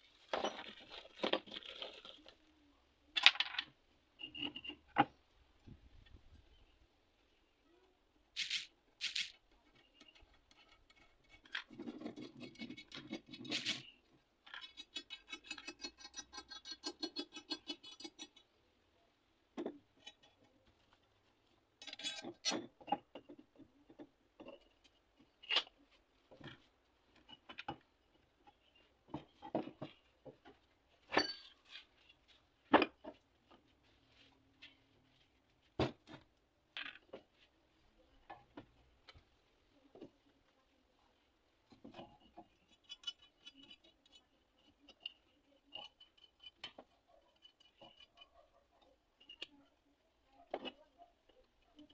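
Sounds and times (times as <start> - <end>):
tools and metal parts clinking: 3.2 - 5.0, 8.4 - 18.4, 21.8 - 25.8, 31.1 - 31.9, 41.9 - 48.4.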